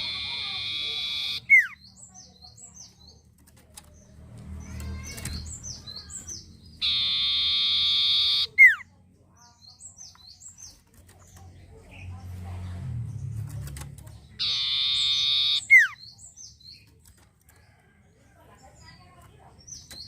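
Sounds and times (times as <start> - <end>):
songbird buzzing trill and whistle: 0.0 - 1.8, 6.8 - 8.8, 14.4 - 16.0.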